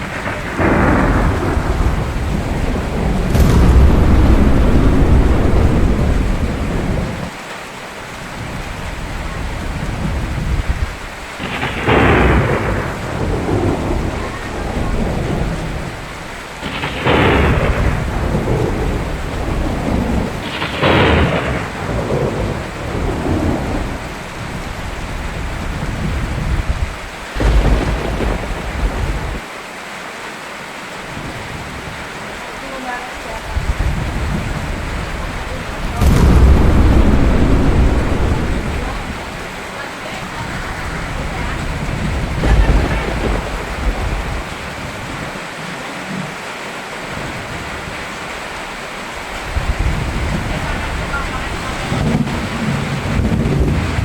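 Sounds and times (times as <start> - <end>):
rumbling thunder: 0.0 - 7.4, 11.4 - 24.2, 27.3 - 29.4, 33.7 - 39.8, 41.8 - 45.3
sharp thunderclaps: 0.0 - 7.4, 11.4 - 15.8, 16.6 - 23.8, 27.3 - 29.4, 35.8 - 39.8, 42.4 - 45.2
steady rain: 0.0 - 54.0.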